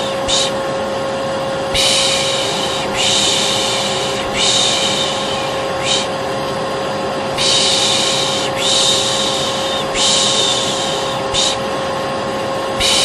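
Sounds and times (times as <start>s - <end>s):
person shushing: 0.0s - 0.6s, 1.7s - 6.2s, 7.4s - 11.7s, 12.8s - 13.0s
vacuum cleaner motor humming: 0.0s - 13.0s.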